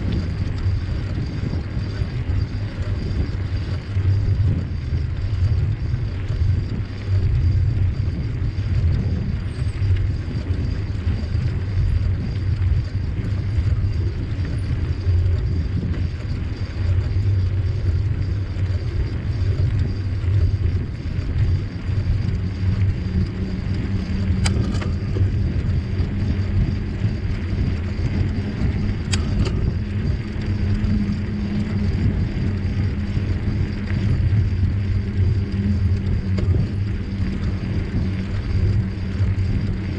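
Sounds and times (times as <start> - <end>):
low steady hum: 0.0 - 39.9
wind and rolling rumble: 0.0 - 39.9
sharp clicks: 24.3 - 25.0.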